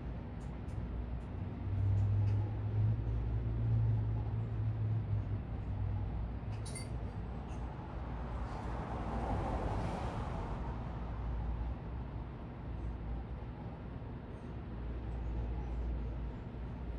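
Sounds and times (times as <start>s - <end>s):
traffic noise: 0.0s - 16.9s
passing vehicle engine rumble: 1.4s - 13.2s.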